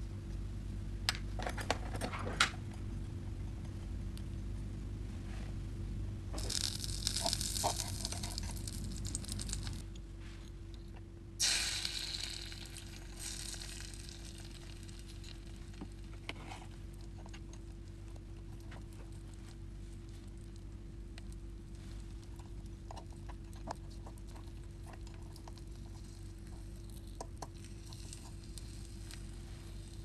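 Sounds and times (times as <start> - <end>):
low hum: 0.0 - 30.0
butter sizzling in a pan: 6.4 - 9.8, 11.4 - 15.8
egg sizzling in a hot pan: 6.4 - 9.8, 11.4 - 16.2.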